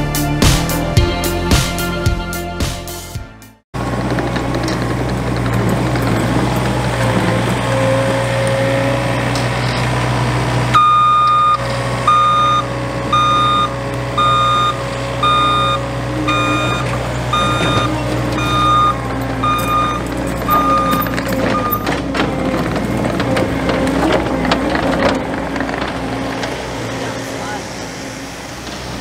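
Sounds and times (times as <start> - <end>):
track loader engine running: 3.8 - 29.0
backup alarm beeping: 10.8 - 22.1.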